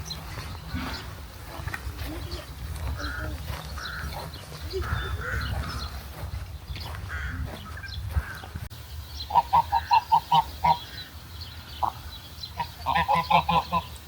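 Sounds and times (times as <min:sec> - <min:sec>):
geese honking: 0:02.1 - 0:06.3, 0:09.2 - 0:14.0.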